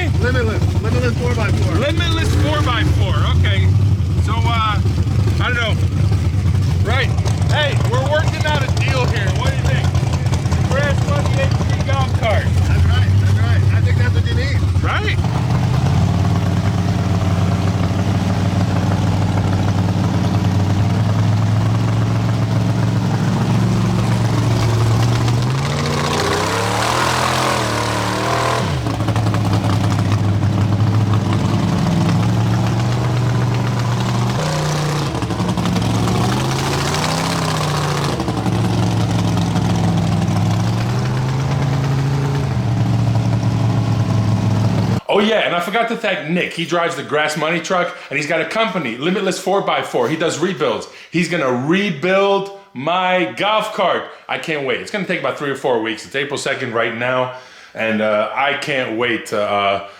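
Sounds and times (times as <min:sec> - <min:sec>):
vehicle engine idling and revving: 0:00.0 - 0:45.1.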